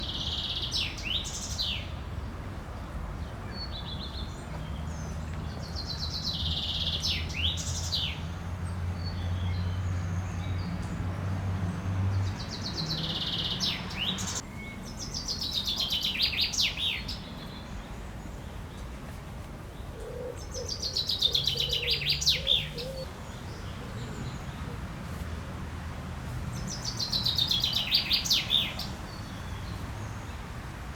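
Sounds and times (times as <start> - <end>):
songbird singing trills: 12.2 - 17.9, 20.4 - 24.5, 26.6 - 29.8.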